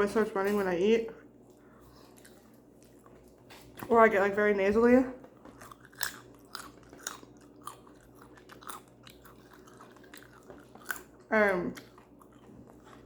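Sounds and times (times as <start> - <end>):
person chewing with mouth open: 1.5 - 3.9, 5.2 - 13.0.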